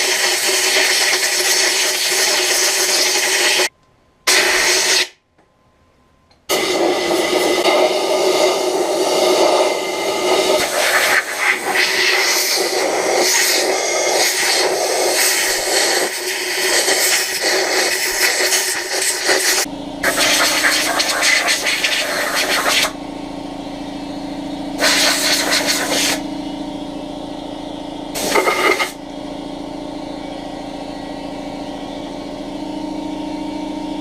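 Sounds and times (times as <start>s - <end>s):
compressed air hissing: 4.3s - 5.2s, 6.5s - 23.0s, 24.8s - 26.2s, 28.2s - 29.0s.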